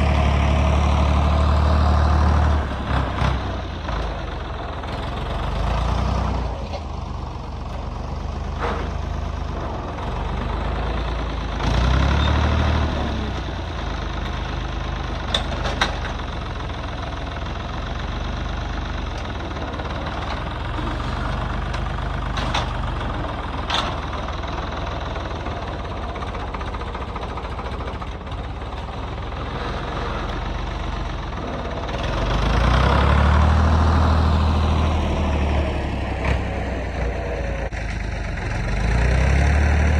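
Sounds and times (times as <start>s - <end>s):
vehicle engine rumbling: 0.0s - 39.9s
sharp clanks or rattles: 21.3s - 23.0s.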